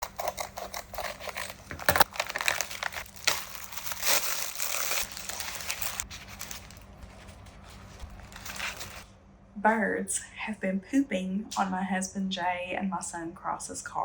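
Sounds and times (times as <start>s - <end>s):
crinkling and rustling: 0.0s - 9.1s.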